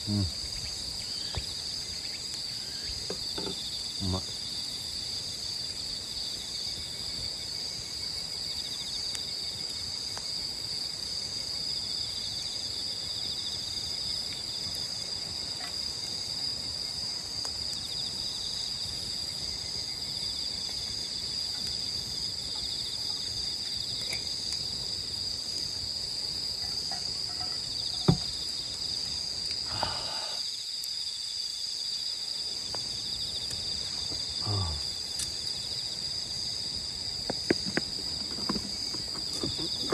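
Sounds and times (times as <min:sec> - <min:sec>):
crickets and insects trilling: 0:00.0 - 0:39.9.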